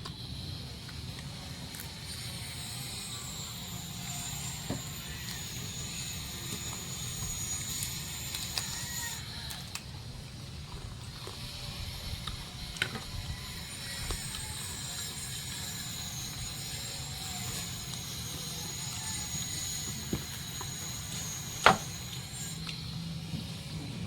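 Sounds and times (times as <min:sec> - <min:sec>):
faint high whine: 0:00.0 - 0:09.4
crunching while eating: 0:00.0 - 0:23.6.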